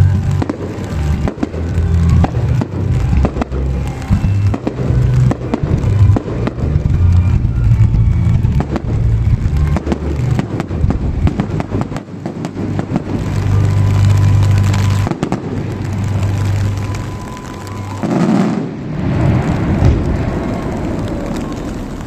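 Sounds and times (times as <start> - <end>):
low hum of music: 0.0 - 17.4
fireworks bursting and crackling: 0.0 - 22.0.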